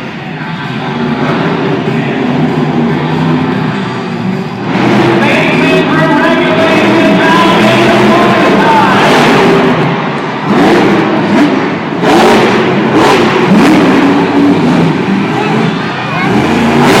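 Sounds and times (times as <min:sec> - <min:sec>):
monster truck engine revving: 0:00.0 - 0:17.0
music over loudspeakers: 0:05.2 - 0:09.3.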